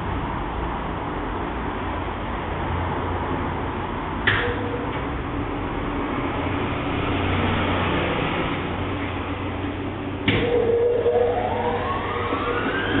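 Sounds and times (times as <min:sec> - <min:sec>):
washing machine humming: 0:04.1 - 0:13.0.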